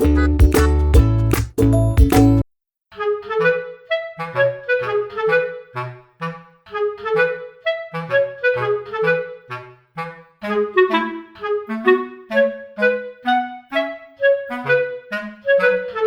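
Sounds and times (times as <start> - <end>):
low bass notes: 0.0 - 2.4.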